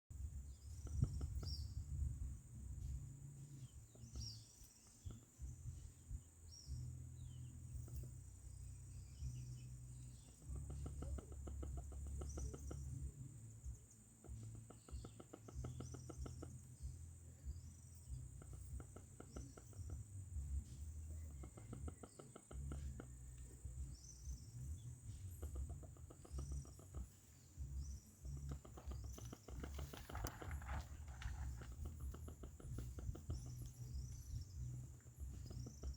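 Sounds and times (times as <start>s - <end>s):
wind rumble on microphone: 0.1s - 22.0s, 22.6s - 35.9s
small birds chirping: 0.1s - 35.9s
insects trilling: 7.8s - 35.9s.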